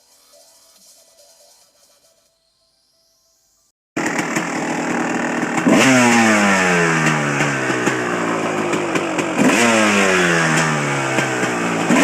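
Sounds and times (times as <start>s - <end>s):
motorcycle engine revving: 4.0s - 12.0s.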